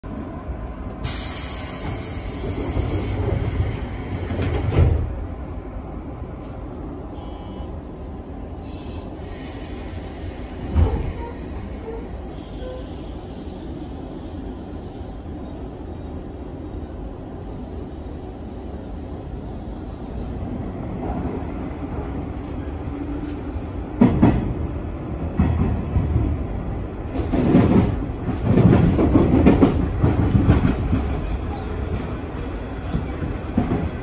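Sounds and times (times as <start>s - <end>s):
train wheels rumbling on rail: 0.1s - 34.0s.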